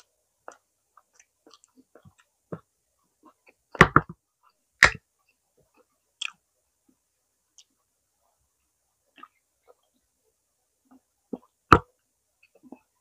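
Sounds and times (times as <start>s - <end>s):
soft chewing clicks: 0.0s - 2.3s, 5.3s - 6.4s.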